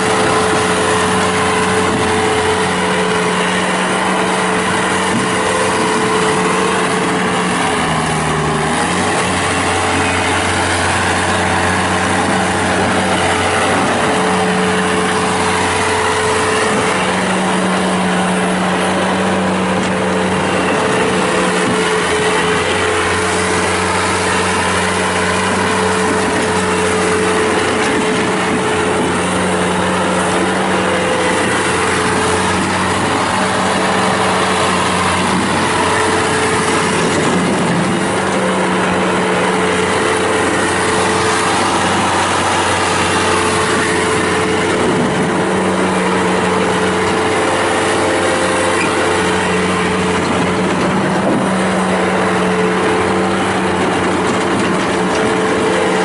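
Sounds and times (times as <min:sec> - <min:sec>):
hydraulic whine: 0:00.0 - 0:56.0
skid steer diesel engine running: 0:00.0 - 0:56.0.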